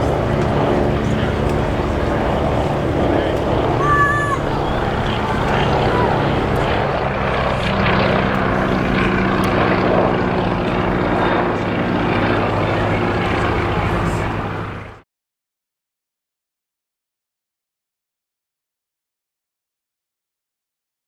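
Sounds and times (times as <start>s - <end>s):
aircraft flying past: 0.0s - 15.0s
helicopter rotor: 0.0s - 15.0s.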